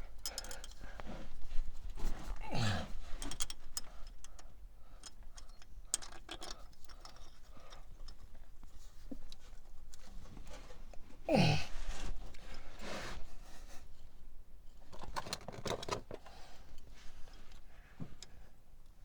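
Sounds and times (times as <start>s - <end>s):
metallic clicks of hand tools: 0.2s - 0.8s, 3.2s - 8.2s
grunt-like sound: 11.3s - 11.7s.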